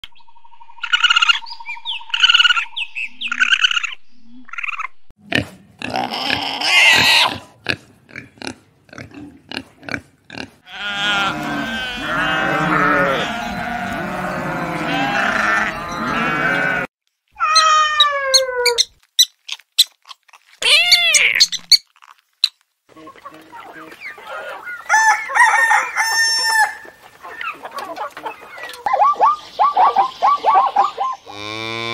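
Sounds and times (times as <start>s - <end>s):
sheep bleating: 10.6s - 16.9s
rising-and-falling animal calls: 10.6s - 18.9s, 23.0s - 31.9s
falling animal call: 10.7s - 18.9s, 20.6s - 21.6s.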